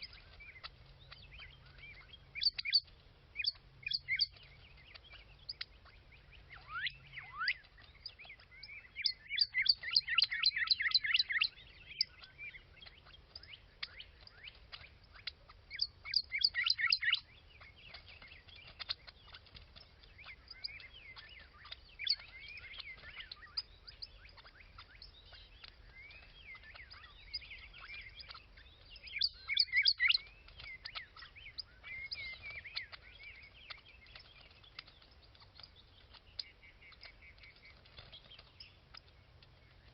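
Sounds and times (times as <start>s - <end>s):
small birds chirping: 0.0s - 39.9s
bird fast trilling: 13.8s - 39.2s.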